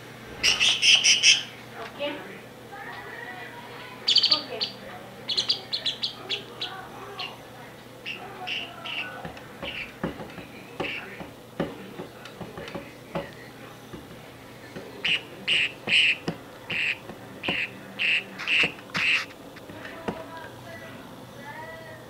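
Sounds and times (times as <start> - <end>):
bird calls: 0.4 - 1.6, 4.0 - 7.4, 8.0 - 10.0, 15.0 - 19.3.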